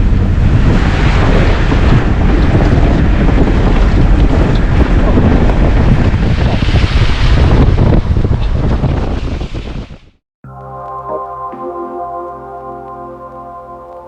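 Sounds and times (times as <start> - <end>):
strong wind buffeting microphone: 0.0 - 10.2.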